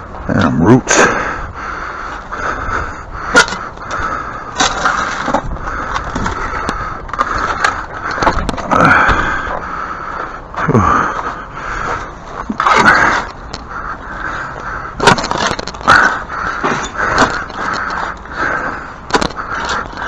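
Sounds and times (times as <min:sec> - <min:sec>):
shovel scraping soil: 0:04.6 - 0:05.4.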